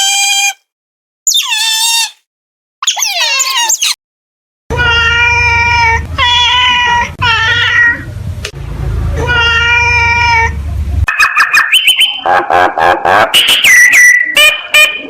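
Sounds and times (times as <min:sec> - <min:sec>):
cat meowing: 0:01.3 - 0:02.2, 0:02.8 - 0:04.0, 0:04.7 - 0:08.1, 0:09.2 - 0:10.6.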